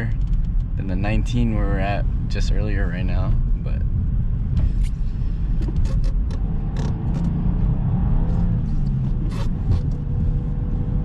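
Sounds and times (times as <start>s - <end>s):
engine and tyres rumbling: 0.0s - 11.0s.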